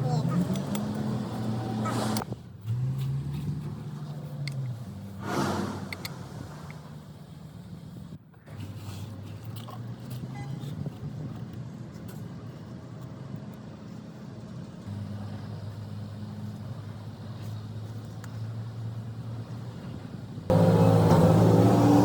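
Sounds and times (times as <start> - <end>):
diesel engine running: 11.2 - 22.0.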